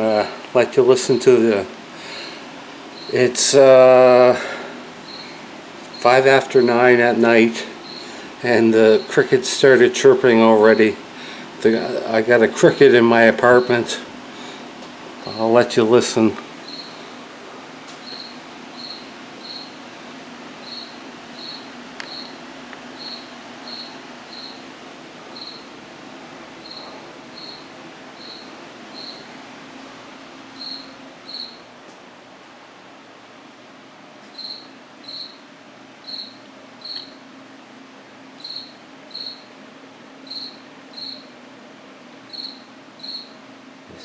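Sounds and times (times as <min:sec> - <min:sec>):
low steady hum: 0:00.0 - 0:44.0
cricket chirping: 0:02.9 - 0:03.3, 0:05.0 - 0:06.7, 0:07.8 - 0:08.2, 0:16.6 - 0:17.0, 0:18.0 - 0:19.8, 0:20.6 - 0:24.6, 0:25.3 - 0:25.7, 0:26.6 - 0:29.3, 0:30.6 - 0:31.6, 0:34.3 - 0:35.4, 0:36.0 - 0:37.2, 0:38.4 - 0:39.5, 0:40.2 - 0:41.3, 0:42.3 - 0:43.4.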